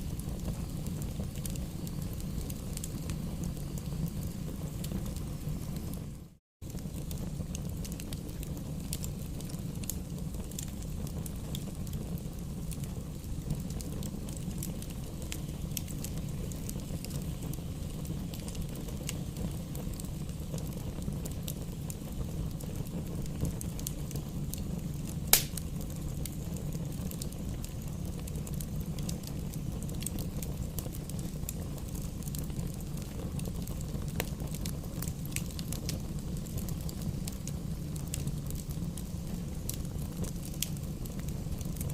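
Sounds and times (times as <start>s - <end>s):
wood fire rumbling and crackling: 0.0s - 41.9s
loud sharp pop from fire: 25.2s - 25.8s.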